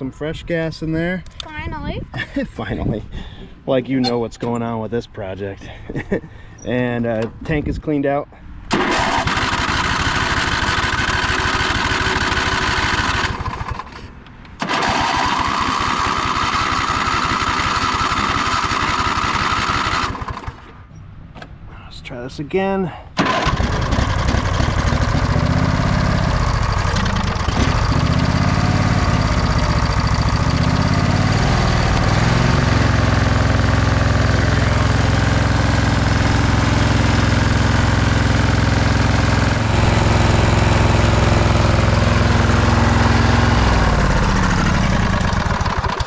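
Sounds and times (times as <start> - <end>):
lawn tractor engine running: 8.7 - 14.0, 14.6 - 20.7, 23.2 - 46.0.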